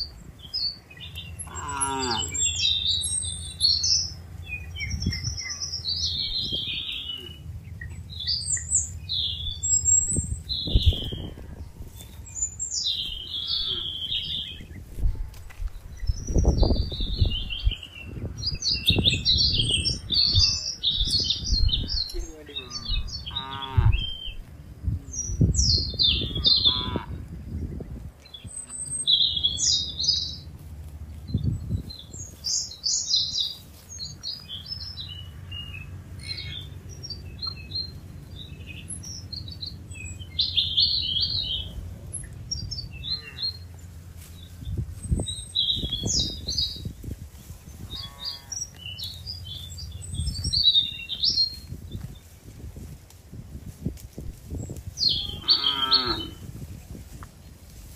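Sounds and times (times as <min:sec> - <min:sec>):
small birds chirping: 0:00.0 - 0:53.0, 0:53.6 - 0:57.9
low steady rumble: 0:00.0 - 0:55.1
low rustling thumps: 0:14.2 - 0:20.4.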